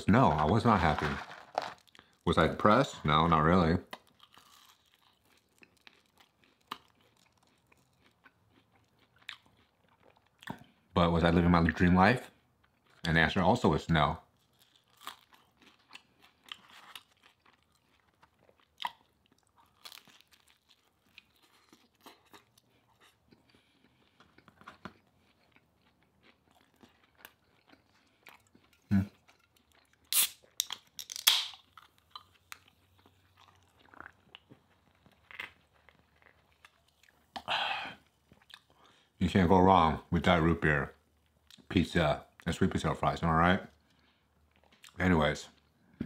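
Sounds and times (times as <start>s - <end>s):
man chewing and crunching food: 0.0s - 13.6s, 14.2s - 39.2s, 39.8s - 46.0s.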